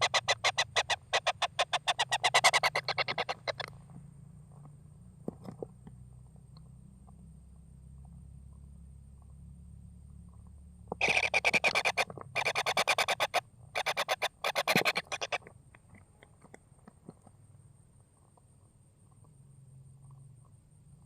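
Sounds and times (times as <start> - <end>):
kingfisher rattling calls: 0.0 - 3.7, 10.9 - 15.5.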